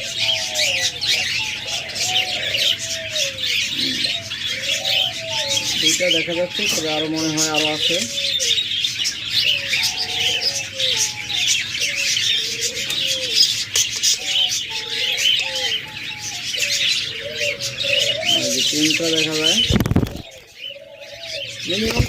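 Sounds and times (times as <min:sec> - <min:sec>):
budgerigars chattering: 0:00.0 - 0:22.0.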